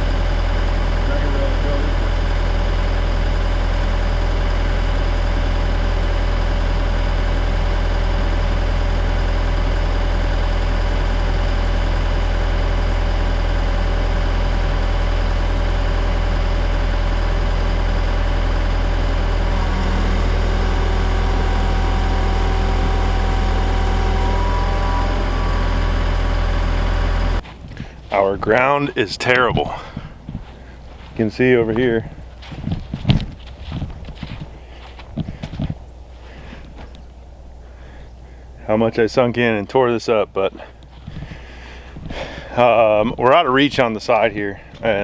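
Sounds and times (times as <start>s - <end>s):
machine engine humming: 0.0s - 45.0s
high steady tone: 19.5s - 27.4s.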